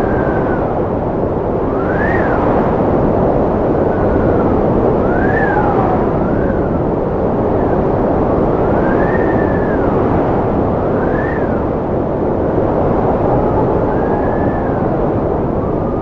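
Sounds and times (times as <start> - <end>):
strong wind rushing: 0.0 - 16.0
thin wind whistle: 0.0 - 16.0.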